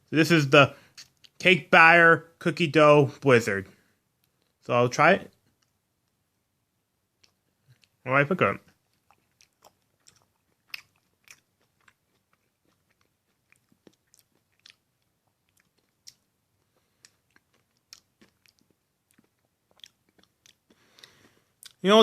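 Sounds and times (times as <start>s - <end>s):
mouth clicks and smacks while eating: 0.9s - 1.4s, 7.2s - 8.0s, 8.6s - 21.8s.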